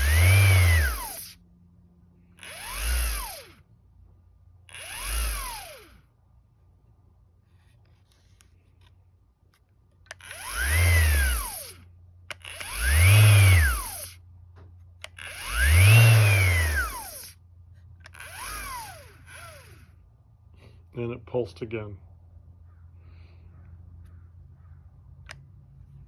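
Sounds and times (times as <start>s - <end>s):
orbital sander motor pulsing: 0.0s - 1.4s, 2.3s - 3.7s, 4.7s - 6.1s, 10.1s - 14.2s, 15.0s - 17.4s, 18.0s - 20.0s.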